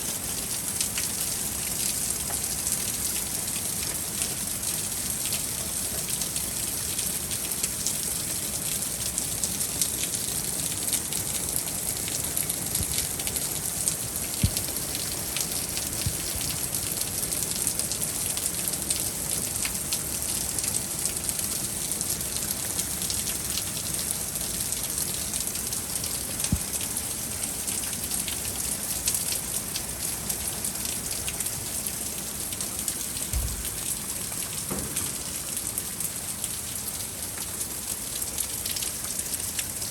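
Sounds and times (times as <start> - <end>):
heavy rain: 0.0 - 39.9
low thump: 33.3 - 33.8.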